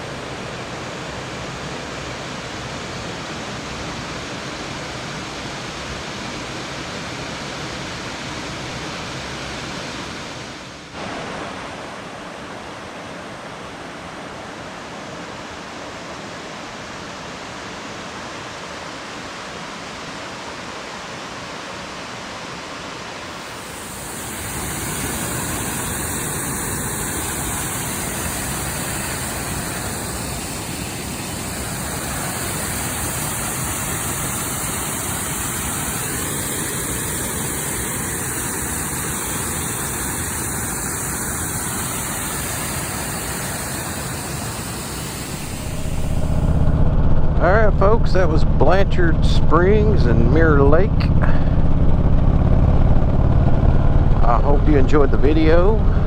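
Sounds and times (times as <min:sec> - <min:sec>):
waterfall rushing: 0:10.9 - 0:46.6.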